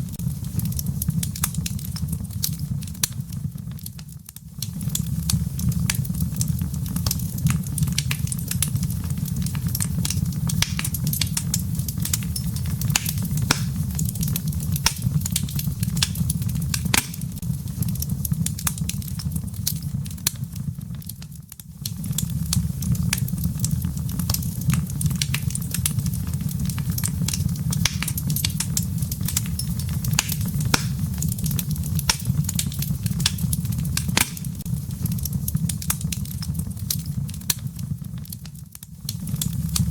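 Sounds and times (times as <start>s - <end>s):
low rumble of flames: 0.0s - 39.9s
firewood pops and snaps: 9.6s - 17.4s, 27.0s - 36.2s.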